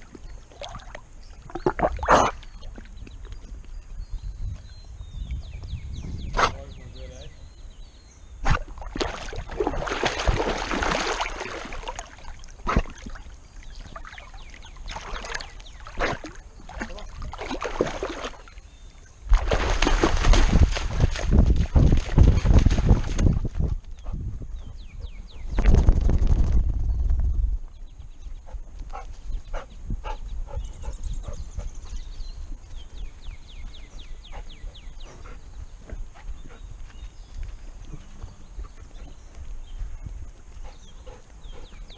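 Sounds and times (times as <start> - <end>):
water splashing and sloshing: 0.0 - 3.8, 8.4 - 24.0.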